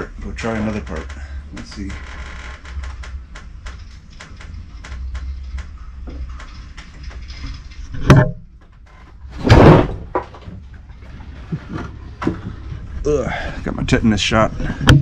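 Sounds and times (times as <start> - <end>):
loud thud: 8.0 - 8.5, 9.3 - 10.6
sharp bang: 9.4 - 10.1.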